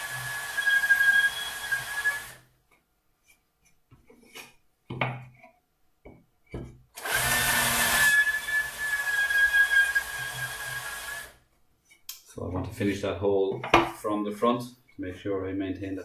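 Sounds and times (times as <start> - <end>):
cordless drill boring through wood: 0.0 - 2.4, 7.0 - 11.4.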